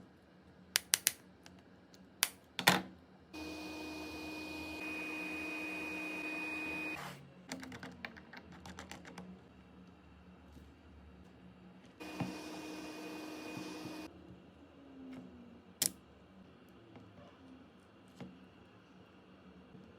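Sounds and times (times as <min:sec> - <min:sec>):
small electric motor whirring: 0:03.4 - 0:07.1, 0:12.0 - 0:14.1.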